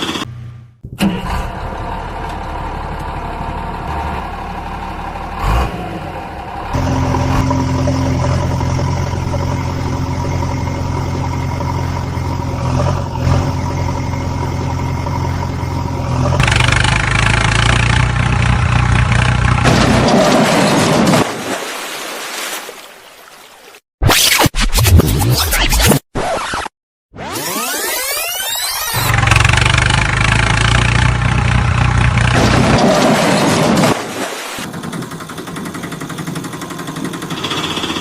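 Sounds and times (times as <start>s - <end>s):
vehicle engine running: 0.0s - 20.0s, 29.0s - 32.8s, 34.6s - 38.0s.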